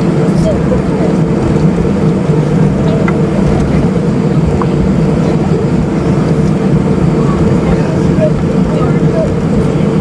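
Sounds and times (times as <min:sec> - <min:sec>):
airplane cabin drone: 0:00.0 - 0:10.0.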